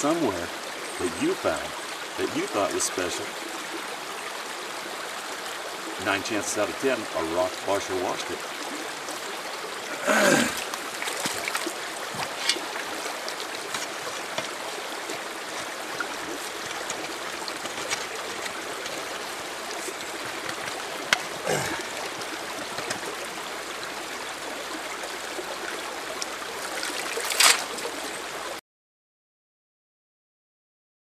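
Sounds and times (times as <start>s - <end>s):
creek water running over rocks: 0.0s - 28.6s.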